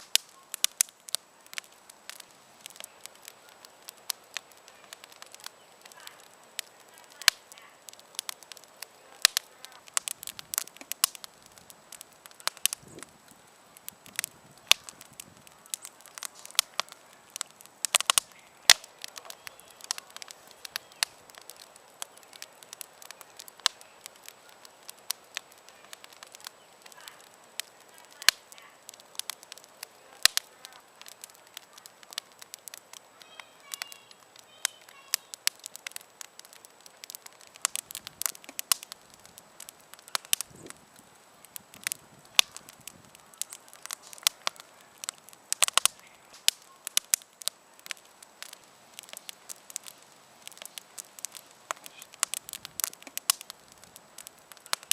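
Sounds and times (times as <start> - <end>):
campfire crackling: 0.0 - 54.9
faint hiss: 0.0 - 54.9.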